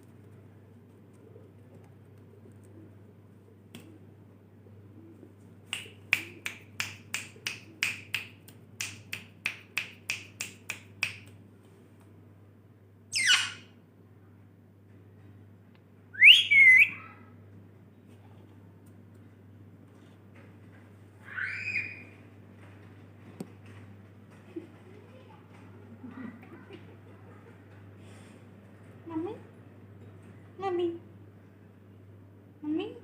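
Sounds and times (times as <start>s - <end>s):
parrot screeching: 13.1s - 13.7s, 16.2s - 17.2s, 21.2s - 22.1s.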